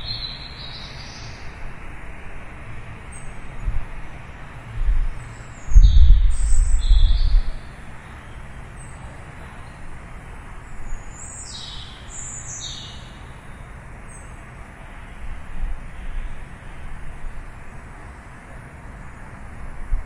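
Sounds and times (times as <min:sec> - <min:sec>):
birds chirping: 0:00.0 - 0:01.6
distant city traffic hiss: 0:00.0 - 0:20.0.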